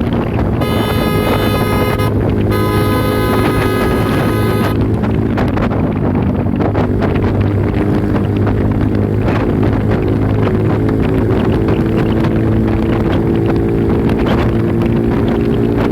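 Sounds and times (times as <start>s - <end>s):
wind rushing over microphone: 0.0s - 15.9s
motorcycle engine at high revs: 0.6s - 5.5s.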